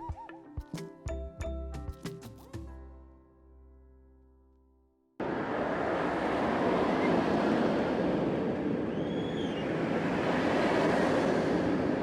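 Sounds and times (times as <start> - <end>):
faint whistled chirp: 0.0 - 0.4, 8.9 - 9.8
steady rushing noise: 5.2 - 12.0.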